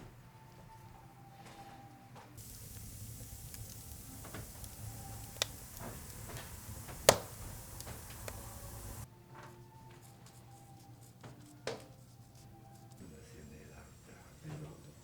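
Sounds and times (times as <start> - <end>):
wood fire crackling: 2.4 - 9.1, 13.3 - 15.0.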